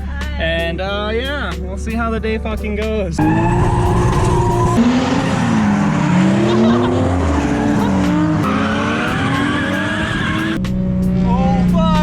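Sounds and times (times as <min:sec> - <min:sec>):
car engines revving: 0:03.1 - 0:12.0
tyre squeal: 0:03.2 - 0:06.2.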